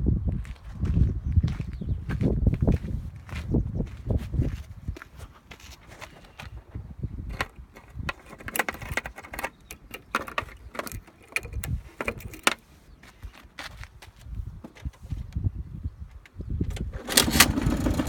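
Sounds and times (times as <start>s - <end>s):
clicks and knocks from handling: 7.3s - 12.6s.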